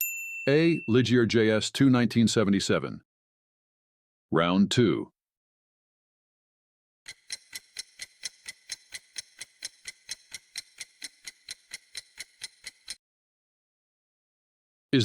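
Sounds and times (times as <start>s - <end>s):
clock ticking: 7.1s - 13.0s.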